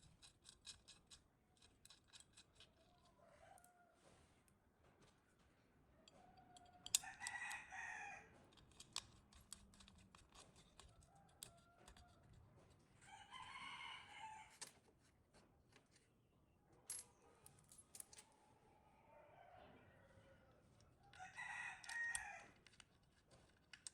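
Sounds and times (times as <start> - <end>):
rooster crowing: 6.2 - 8.3, 13.0 - 14.5, 18.8 - 22.6.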